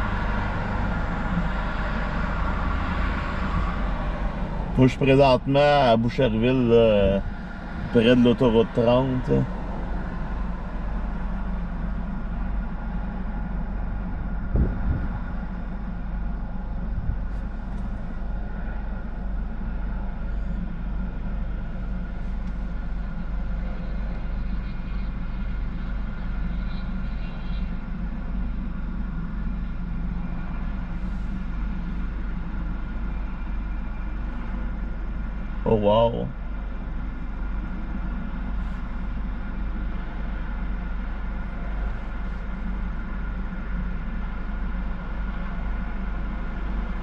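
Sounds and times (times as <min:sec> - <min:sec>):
car idling hum: 0:00.0 - 0:47.0
brief low thump: 0:14.5 - 0:15.2.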